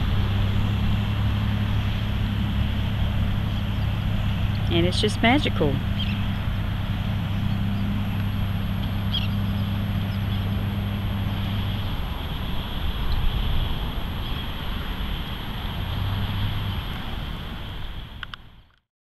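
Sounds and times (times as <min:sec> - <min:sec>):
steady low hum: 0:00.0 - 0:18.3
wind: 0:00.0 - 0:18.9
faint bird chirp: 0:09.0 - 0:10.5.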